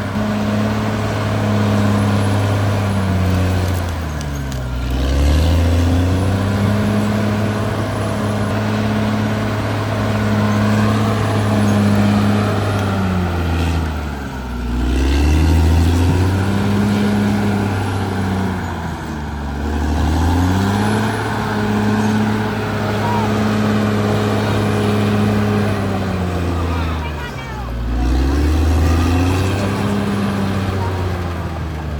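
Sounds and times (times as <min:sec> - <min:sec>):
bulldozer diesel engine running: 0:00.0 - 0:31.9.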